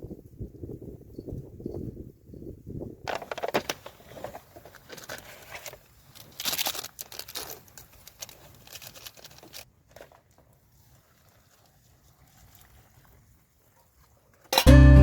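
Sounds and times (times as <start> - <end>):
crinkling rustling handling noise: 3.1 - 13.1.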